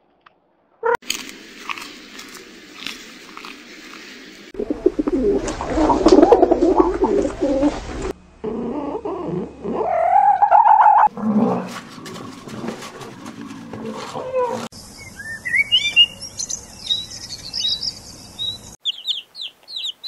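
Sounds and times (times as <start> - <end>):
rising held animal call: 4.6 - 11.7
low animal calls: 4.6 - 14.7.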